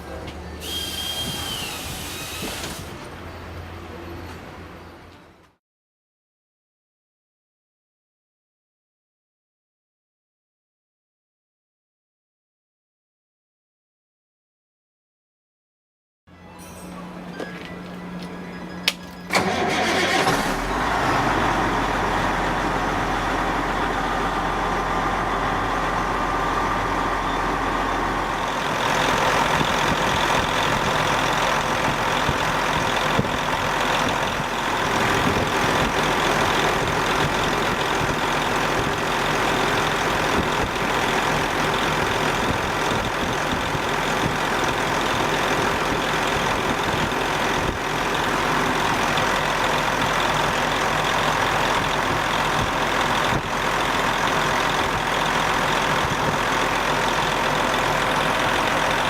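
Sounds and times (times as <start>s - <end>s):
engine cranking and starting: 18.9s - 21.6s
engine idling: 19.3s - 59.0s.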